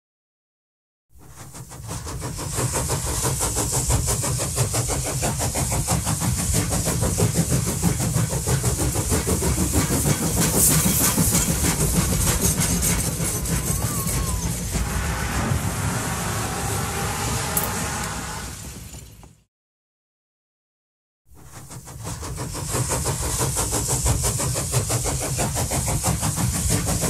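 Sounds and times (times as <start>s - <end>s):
train clattering: 1.2s - 16.3s, 21.4s - 27.0s.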